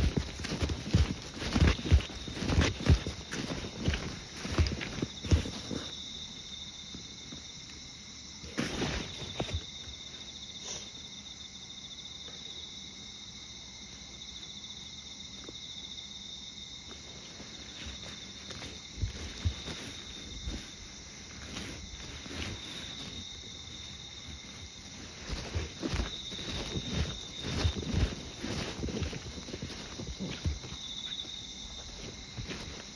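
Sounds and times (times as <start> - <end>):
foot scuff: 0.0 - 6.0, 8.4 - 9.7, 17.4 - 32.9
footsteps: 0.0 - 6.1, 8.4 - 9.7, 16.9 - 32.9
insects chirring: 0.0 - 32.9.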